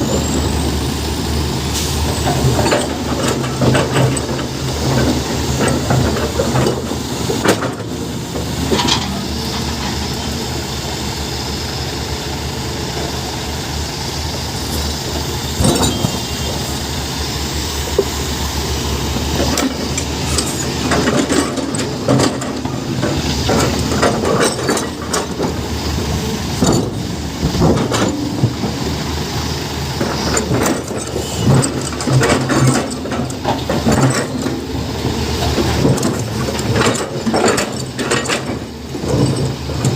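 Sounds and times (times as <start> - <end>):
hydraulic hiss: 0.0 - 3.1
excavator diesel engine running: 0.0 - 39.9.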